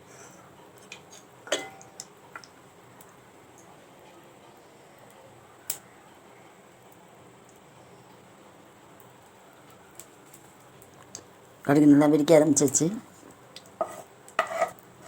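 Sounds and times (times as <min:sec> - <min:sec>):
mustard seeds popping in oil: 0:00.8 - 0:03.8, 0:09.0 - 0:11.3, 0:12.6 - 0:15.0.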